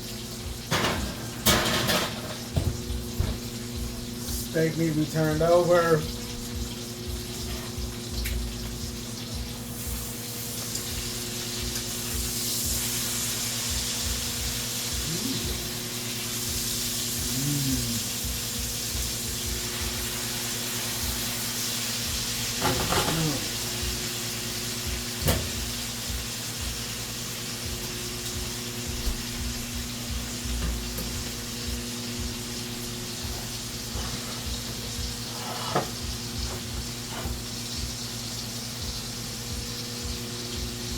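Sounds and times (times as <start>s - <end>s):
steak sizzling in a pan: 0.0s - 40.9s
constant low hum: 6.0s - 10.1s, 27.6s - 35.2s.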